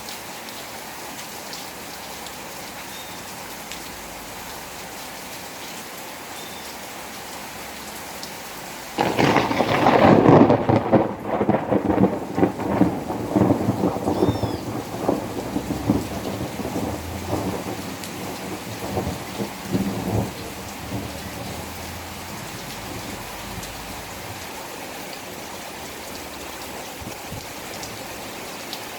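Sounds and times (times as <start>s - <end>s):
steady rain falling: 0.0s - 28.9s
thunderclap rumbling: 9.0s - 24.6s.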